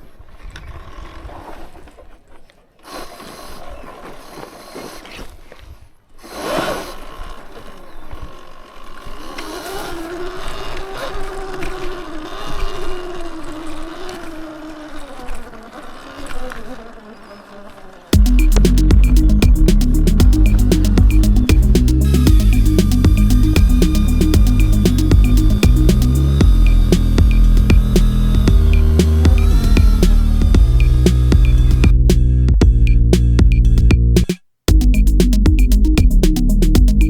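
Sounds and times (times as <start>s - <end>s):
small motor whining: 2.8s - 32.3s.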